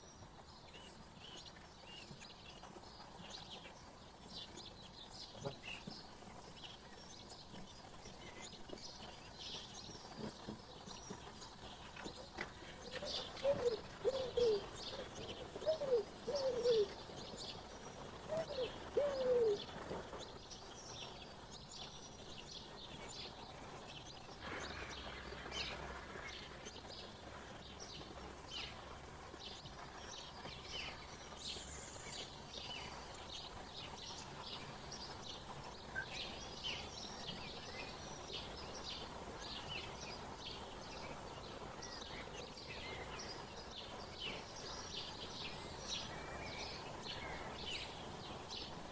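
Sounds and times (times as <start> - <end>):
small birds chirping: 0.0 - 48.9
low cooing calls: 11.5 - 20.2.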